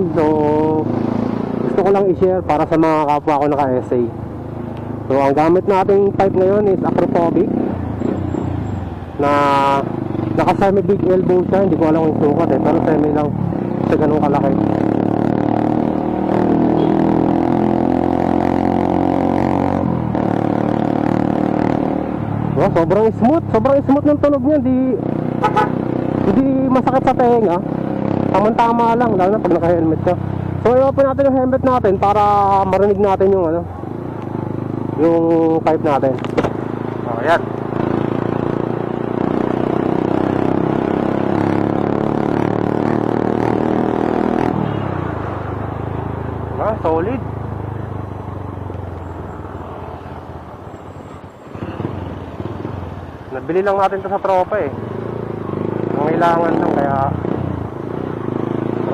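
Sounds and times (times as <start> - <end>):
motorcycle exhaust running: 24.4 - 33.2
motorcycle engine exhaust: 25.2 - 26.8.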